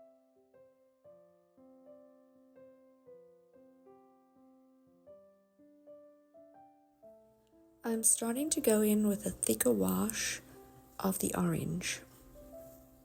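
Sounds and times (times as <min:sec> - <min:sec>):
soft piano music: 0:00.0 - 0:13.0.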